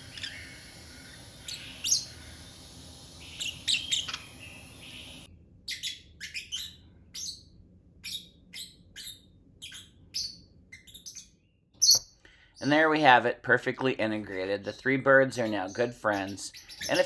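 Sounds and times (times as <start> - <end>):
background hiss: 0.0 - 5.3
parrots chirping: 0.0 - 13.0, 15.3 - 17.0.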